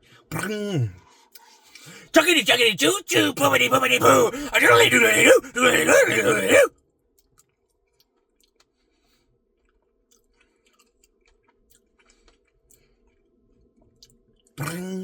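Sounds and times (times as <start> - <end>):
chewing and wet mouth clicks: 1.3 - 1.9, 7.1 - 8.9, 9.6 - 14.8.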